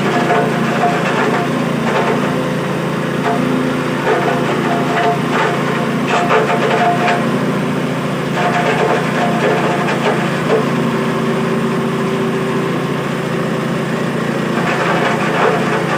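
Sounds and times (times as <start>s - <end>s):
grinding machine motor drone: 0.0s - 15.9s
grater scraping and grating: 14.5s - 15.9s.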